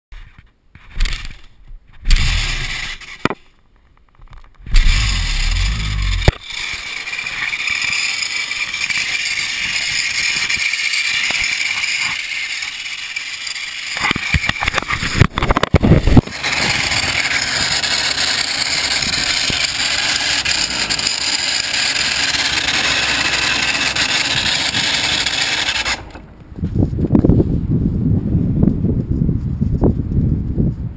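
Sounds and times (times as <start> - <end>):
two-stroke engine running: 2.1 - 2.9, 4.7 - 26.3
loud low engine burst: 2.1 - 3.0, 4.7 - 11.7, 15.9 - 26.2.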